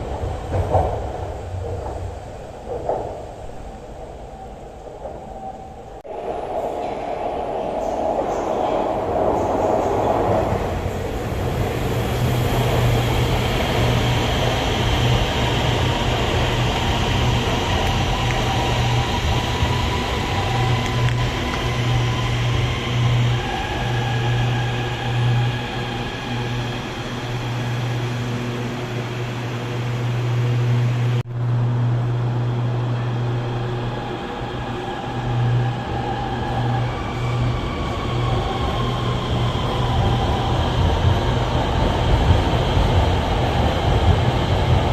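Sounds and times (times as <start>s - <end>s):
train low hum: 0.0s - 44.9s.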